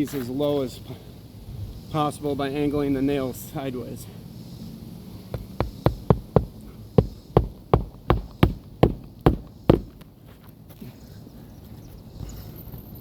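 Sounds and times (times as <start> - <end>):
hammer striking roofing nails: 5.3 - 10.0.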